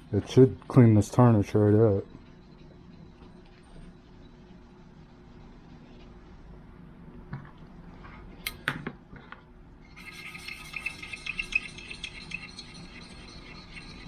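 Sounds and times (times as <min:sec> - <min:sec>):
scratchy rubbing on brass: 0:09.9 - 0:14.0.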